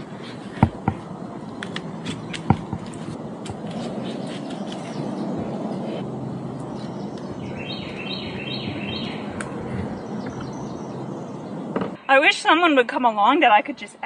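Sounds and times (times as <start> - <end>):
outdoor background noise: 0.0 - 14.0
bird high chirping notes: 4.0 - 12.6.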